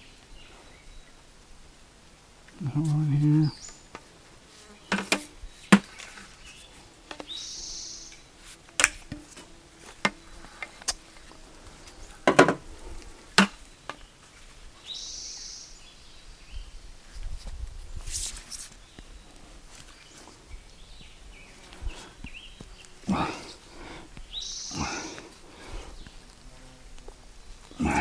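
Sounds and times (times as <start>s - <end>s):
knocks and clicks of plumbing tools: 4.9s - 6.0s, 12.3s - 12.6s.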